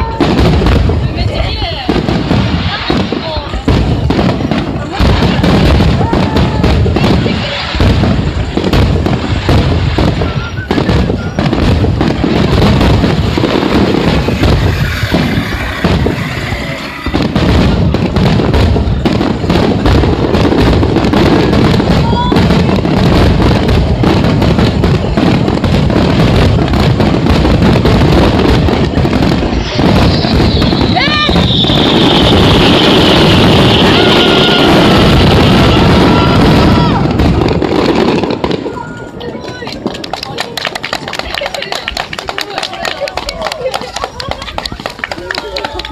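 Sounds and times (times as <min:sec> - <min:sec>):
fireworks bangs and crackles: 0:00.0 - 0:45.9
firework whistle: 0:09.5 - 0:19.2, 0:28.3 - 0:37.5.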